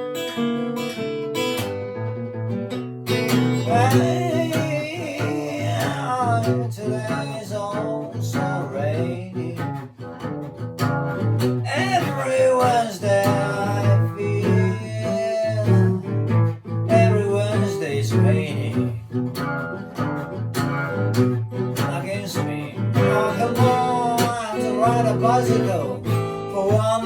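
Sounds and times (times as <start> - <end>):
fingerpicked acoustic guitar blues: 0.0 - 27.0
person singing: 3.6 - 9.8, 11.6 - 16.2, 16.9 - 19.0, 21.8 - 27.0.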